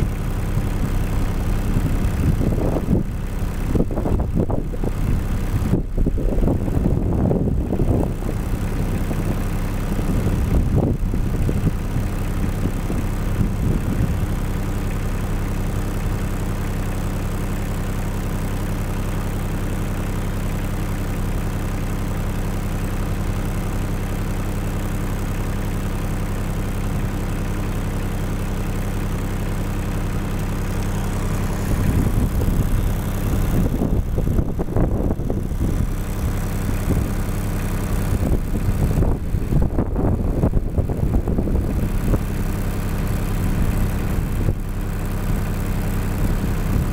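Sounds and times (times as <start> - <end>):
engine idling: 0.0 - 46.9
wind buffeting microphone: 1.6 - 14.4, 31.2 - 37.3, 37.9 - 42.3.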